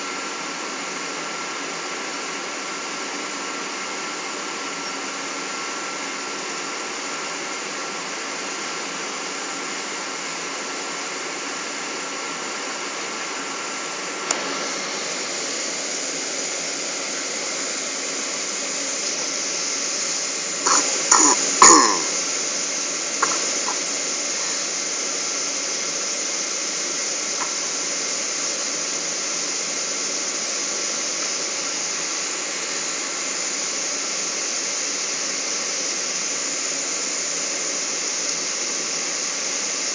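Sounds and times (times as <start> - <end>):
airplane cabin engine hiss: 0.0 - 39.9
cough-like burst: 20.6 - 22.3.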